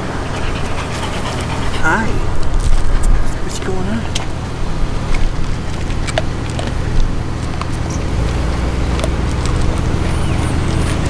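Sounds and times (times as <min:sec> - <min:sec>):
vehicle engine running: 0:03.5 - 0:11.0.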